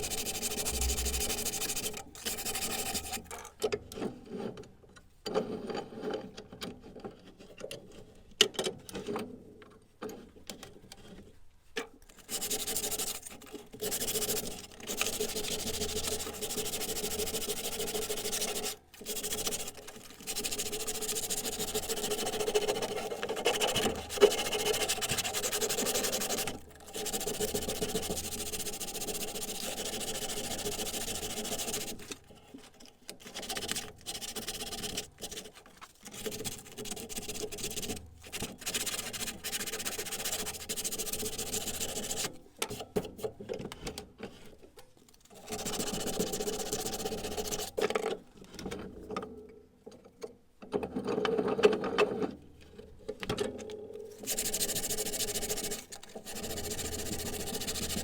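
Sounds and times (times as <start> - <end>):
small workshop tool rasping: 12.3 - 32.1.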